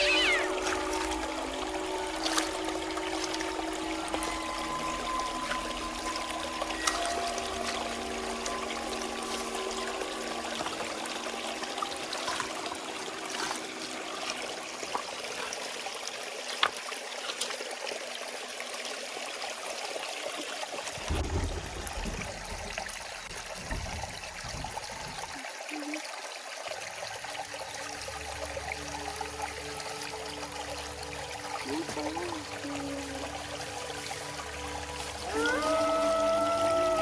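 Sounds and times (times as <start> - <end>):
water trickling: 0.0 - 37.0
low thumps: 21.0 - 25.3.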